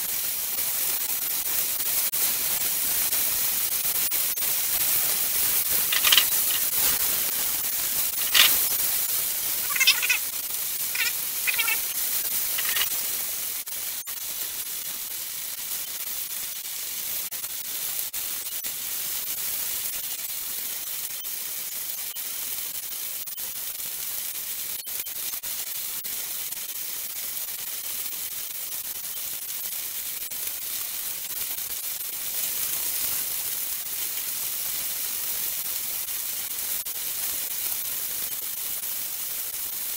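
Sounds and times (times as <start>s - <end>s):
fish sizzling in a wok: 0.0s - 39.9s
metal tongs scraping a wok: 5.7s - 7.0s, 8.1s - 8.8s, 9.6s - 10.2s, 11.0s - 12.9s.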